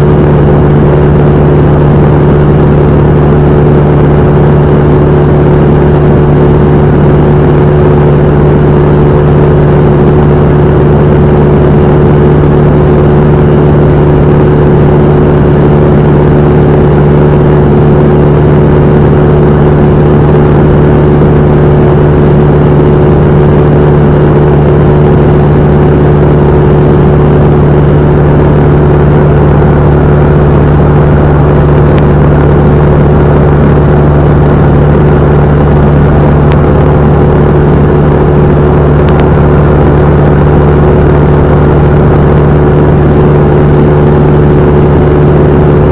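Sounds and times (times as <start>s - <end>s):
airplane engine and propeller: 0.0s - 45.9s.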